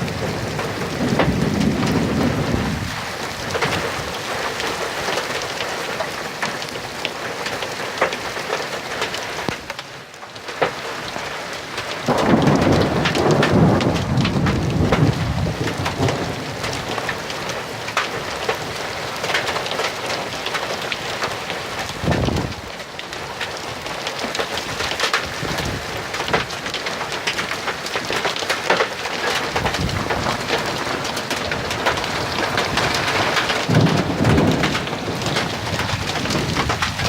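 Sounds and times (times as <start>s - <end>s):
low rumble of thunder: 0.0s - 4.3s, 12.1s - 17.6s, 22.0s - 22.6s, 29.2s - 37.0s
heavy rain falling: 0.0s - 37.0s.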